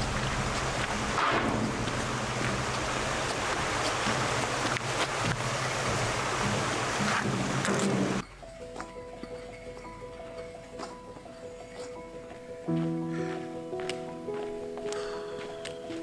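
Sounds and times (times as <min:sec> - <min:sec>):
low rumble: 0:00.0 - 0:03.1
waterfall and river rushing: 0:00.0 - 0:08.2.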